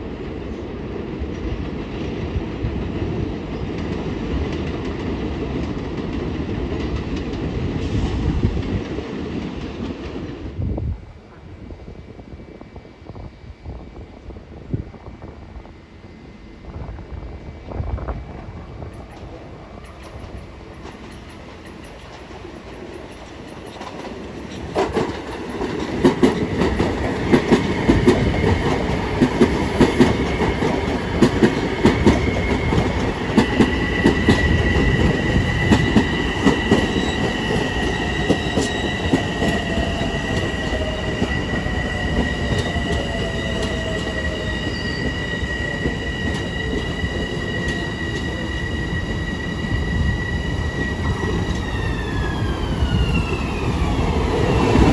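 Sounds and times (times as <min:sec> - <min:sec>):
train wheels clattering: 0:18.9 - 0:54.9
high wheel squeal: 0:33.8 - 0:54.9.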